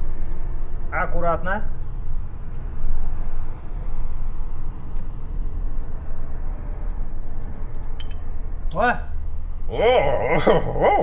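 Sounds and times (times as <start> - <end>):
faint ticks: 0.0 - 8.8
truck rumbling from inside cab: 0.0 - 11.0.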